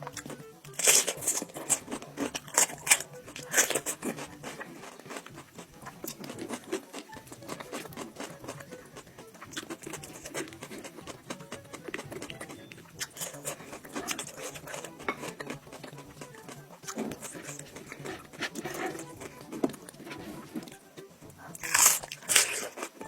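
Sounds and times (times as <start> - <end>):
close chewing of meat: 0.0 - 23.0.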